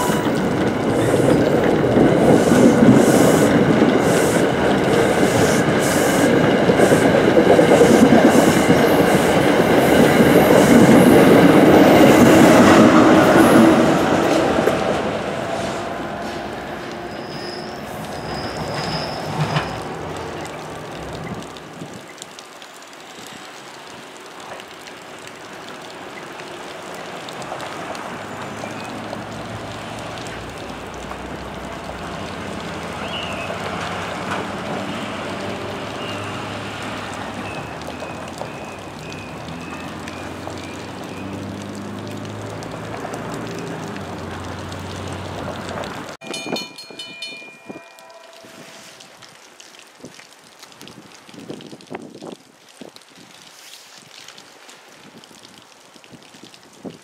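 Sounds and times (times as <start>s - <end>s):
electric train pulling away: 0.0s - 20.8s
road traffic noise: 0.0s - 22.6s, 23.7s - 49.5s
high wheel squeal: 15.5s - 20.0s.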